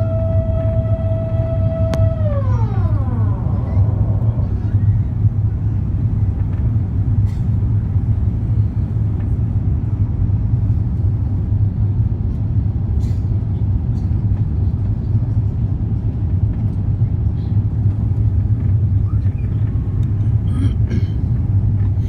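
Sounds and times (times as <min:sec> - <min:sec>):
airplane cabin rumble: 0:00.0 - 0:22.0.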